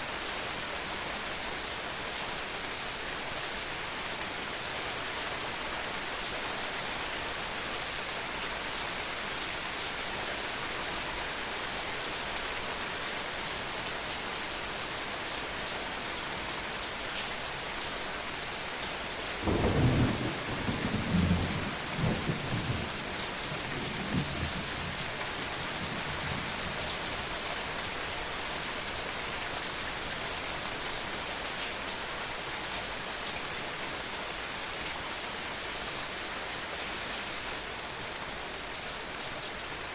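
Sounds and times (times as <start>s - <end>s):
heavy rain falling: 0.0s - 39.9s
thunder rumbling: 19.4s - 23.0s.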